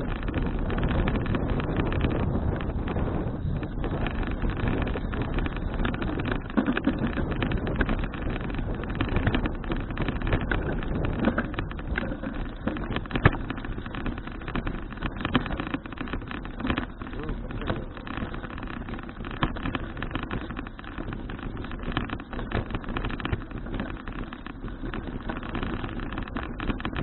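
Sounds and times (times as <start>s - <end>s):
wind rushing over microphone: 0.0s - 27.0s
clicks and knocks: 4.0s - 27.0s.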